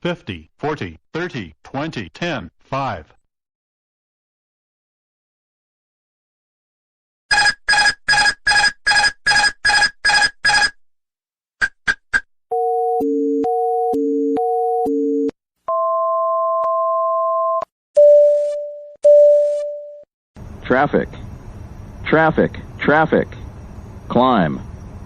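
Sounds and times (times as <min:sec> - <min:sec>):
rapid beeping warning tone: 0:07.3 - 0:10.8.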